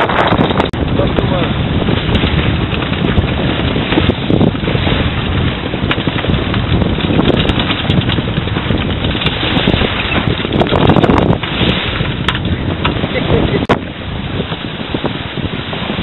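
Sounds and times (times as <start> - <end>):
water rushing along hull: 0.0 - 16.0
wind buffeting microphone: 0.0 - 16.0
clicks and knocks: 12.2 - 13.0.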